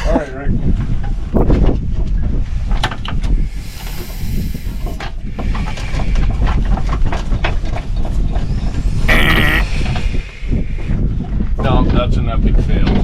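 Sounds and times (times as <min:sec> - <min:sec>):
high air hiss: 0:03.4 - 0:06.4, 0:08.4 - 0:11.0.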